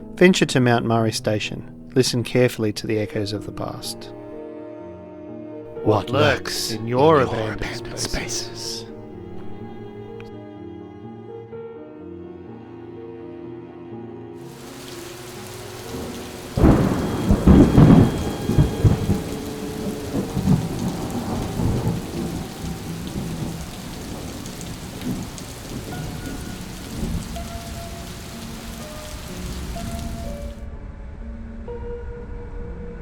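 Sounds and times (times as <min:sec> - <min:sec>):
steady rain: 0:05.8 - 0:08.7, 0:14.5 - 0:30.6
thunderclap rumbling: 0:14.5 - 0:30.6.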